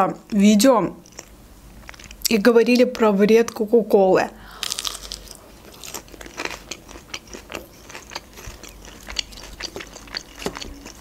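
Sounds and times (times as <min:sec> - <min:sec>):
crunching fried shrimp: 0:04.5 - 0:11.0.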